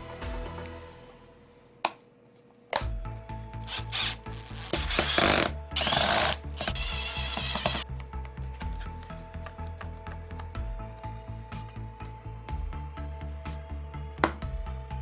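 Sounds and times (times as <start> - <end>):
background music with beat: 0.0 - 1.4, 2.8 - 15.0
cordless drill whining: 3.6 - 7.8.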